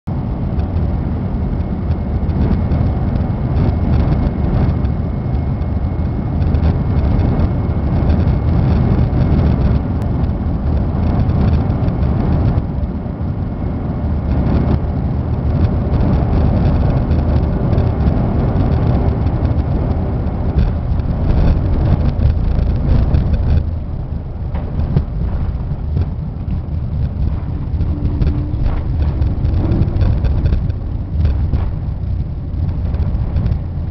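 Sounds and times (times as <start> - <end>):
airliner engine roar: 0.1 - 33.9
rushing air: 0.1 - 33.9.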